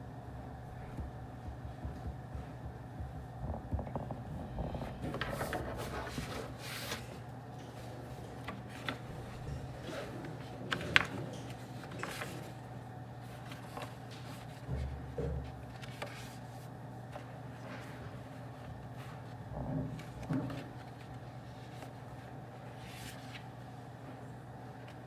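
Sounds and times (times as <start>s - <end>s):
steady low hum: 0.0s - 25.0s
dull low thump: 0.9s - 5.0s.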